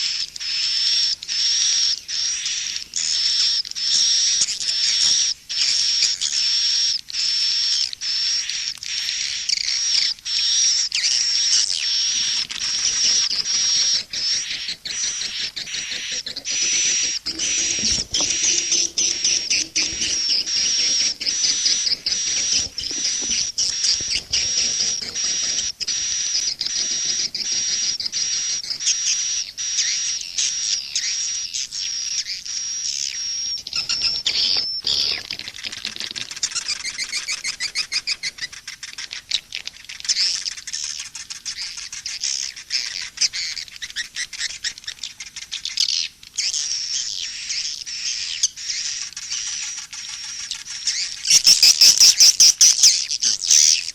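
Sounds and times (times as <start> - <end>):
swiftlet chirping and twittering: 0.0 - 53.9
rapid sharp clicks: 12.9 - 28.7.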